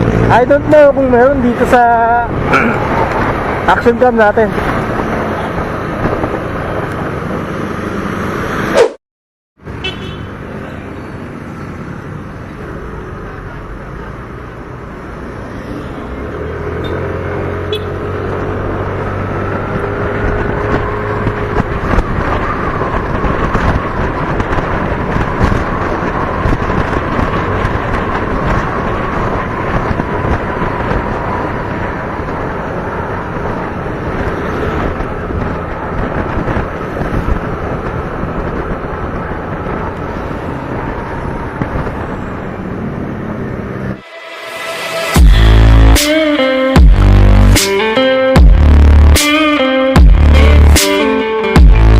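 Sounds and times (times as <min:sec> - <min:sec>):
wind noise on microphone: 0:00.0 - 0:08.1, 0:16.8 - 0:44.0
traffic noise: 0:00.0 - 0:09.0, 0:09.6 - 0:51.9
vehicle engine rising in pitch: 0:43.3 - 0:51.9.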